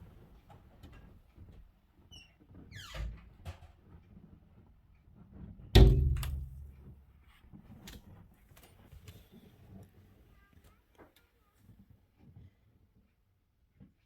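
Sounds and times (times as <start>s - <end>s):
loud thump with rumble: 5.8s - 6.9s.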